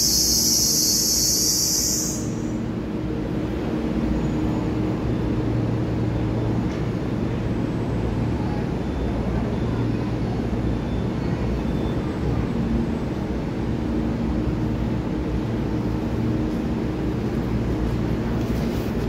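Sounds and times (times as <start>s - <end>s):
high-pitched shrill buzz: 0.0s - 2.6s
train wheels and motors rumbling: 0.0s - 19.0s.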